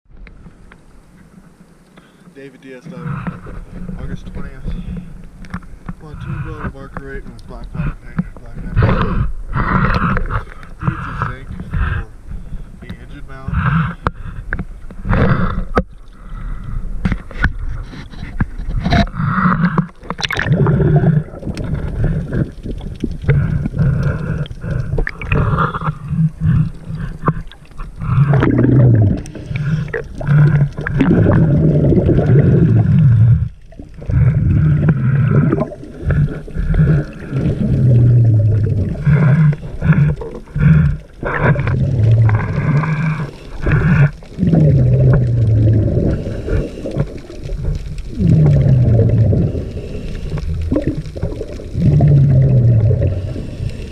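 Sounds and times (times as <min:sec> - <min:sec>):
underwater regulator bubbles gurgling: 0:02.6 - 0:53.9.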